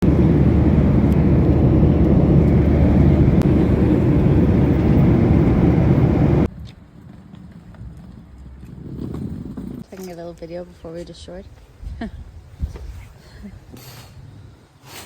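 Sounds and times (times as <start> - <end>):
vehicle rumbling in motion: 0.0 - 9.8.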